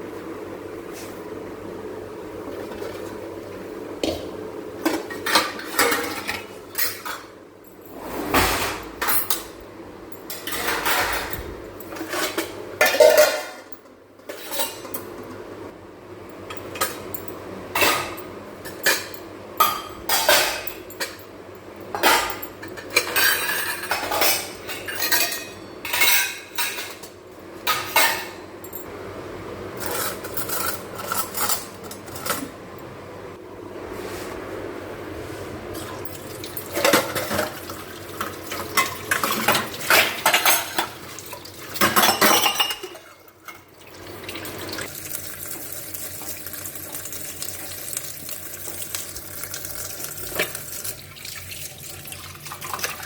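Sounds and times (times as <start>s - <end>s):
dishes clinking and scraping: 4.0s - 9.6s, 10.2s - 15.4s, 16.4s - 28.9s, 29.8s - 32.6s, 35.7s - 43.7s, 46.2s - 51.0s.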